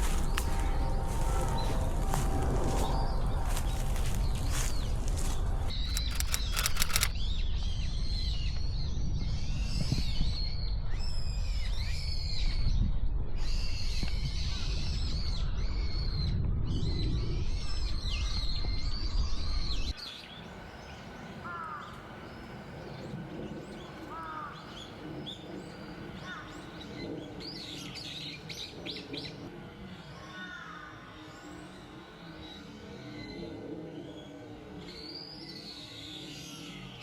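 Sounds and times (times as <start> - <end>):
songbirds chirping: 0.0 - 8.6, 19.8 - 37.0
low rumble: 0.0 - 20.0.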